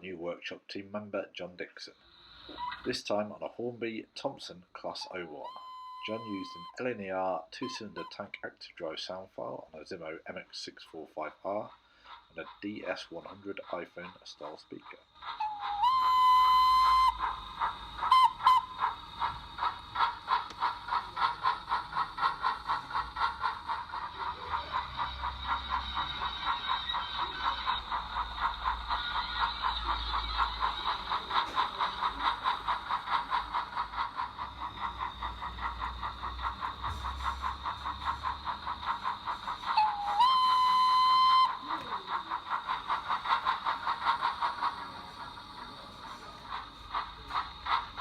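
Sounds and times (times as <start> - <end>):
steam exhaust chuffs: 2.1 - 48.0
steam whistle toot: 5.0 - 6.9, 7.6 - 8.2, 15.4 - 19.0, 39.7 - 41.9.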